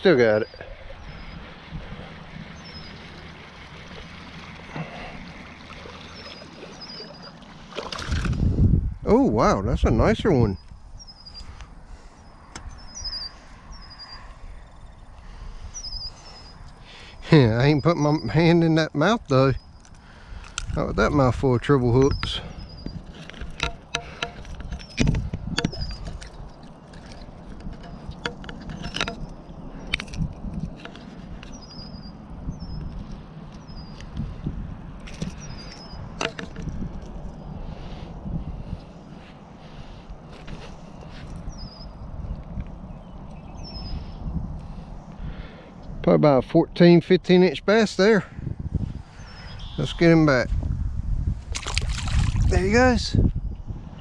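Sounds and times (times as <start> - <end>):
faint pond water: 0.0 - 54.0
wind rumble on microphone: 0.4 - 3.8, 7.6 - 18.5, 19.2 - 54.0
handling clicks and knocks: 22.9 - 31.6, 35.0 - 37.4
short high bird chirp: 49.2 - 50.0.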